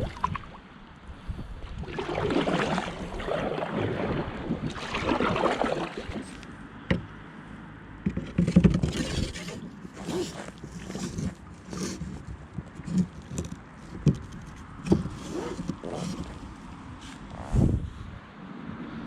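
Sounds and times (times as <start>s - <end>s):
paddle splashing water: 0.0s - 0.7s, 1.6s - 7.0s.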